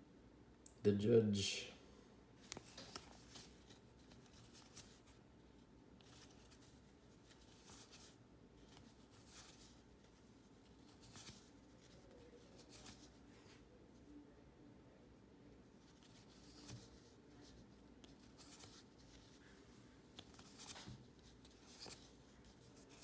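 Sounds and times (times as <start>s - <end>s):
cards sliding and brushing: 2.4s - 5.2s, 6.0s - 13.6s, 15.8s - 19.4s, 20.1s - 23.0s.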